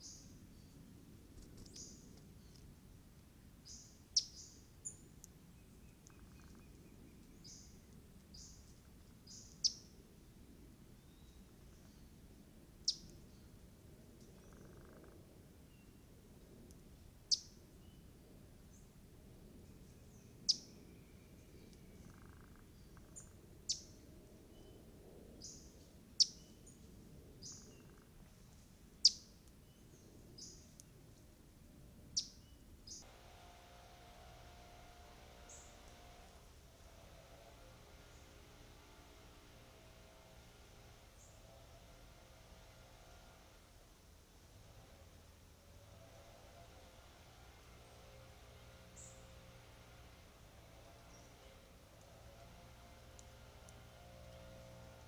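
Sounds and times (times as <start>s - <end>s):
bird chirps: 3.6s - 9.9s
faint steady hiss: 24.8s - 55.0s.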